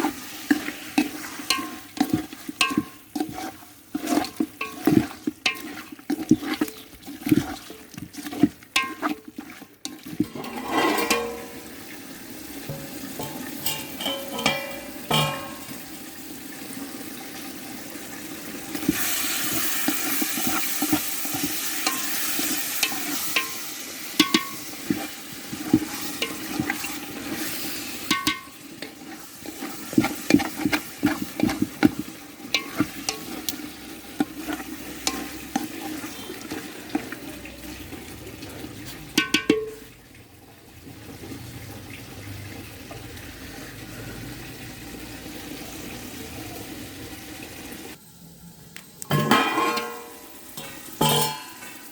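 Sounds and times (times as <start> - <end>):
spoon scraping and knocking pan: 0.0 - 16.0, 18.7 - 39.9, 49.1 - 51.9
curry sizzling in a pan: 0.0 - 48.0, 49.2 - 51.9.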